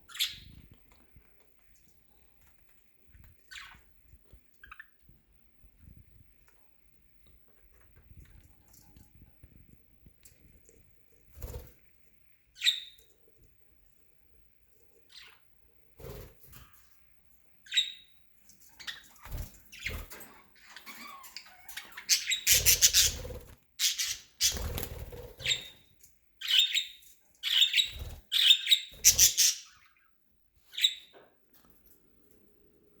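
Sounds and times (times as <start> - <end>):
budgerigars chirping and squawking: 0.1 - 0.6, 17.7 - 30.1.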